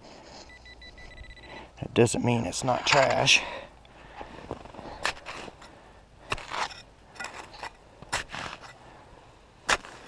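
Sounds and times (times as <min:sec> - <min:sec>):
digging tool striking frozen ground: 0:05.0 - 0:08.8, 0:09.6 - 0:10.0.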